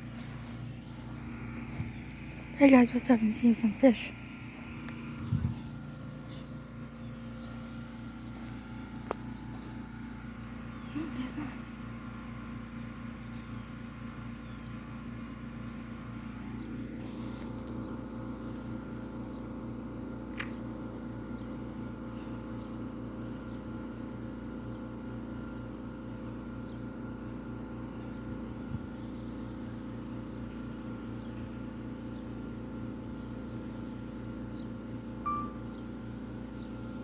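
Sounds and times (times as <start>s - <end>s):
sharp click: 20.3s - 20.6s
short high chirps: 35.3s - 35.7s.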